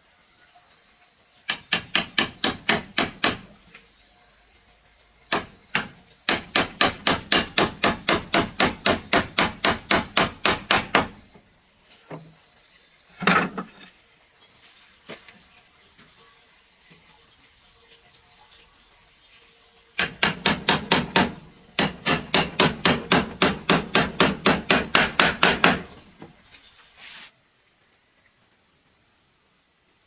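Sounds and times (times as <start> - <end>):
hammer striking wood: 1.5 - 3.5, 5.3 - 11.2, 20.0 - 26.1.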